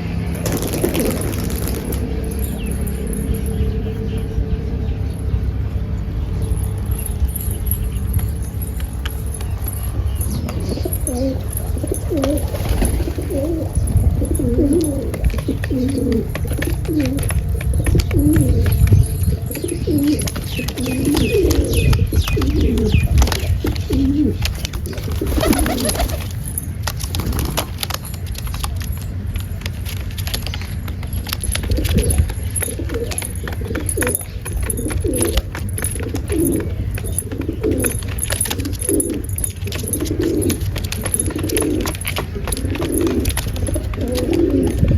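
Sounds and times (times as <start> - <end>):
pigeons cooing: 0.0 - 5.0, 6.5 - 44.9
steady low rumble: 0.0 - 38.5
higher bird chirps: 0.4 - 26.5.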